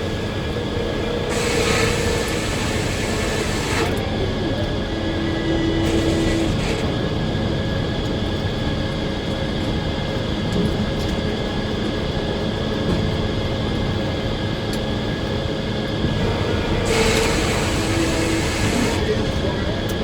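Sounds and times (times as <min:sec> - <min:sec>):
loud hiss: 0:00.0 - 0:03.9, 0:16.7 - 0:19.0
sawmill machine drone: 0:00.0 - 0:09.2, 0:14.8 - 0:20.0.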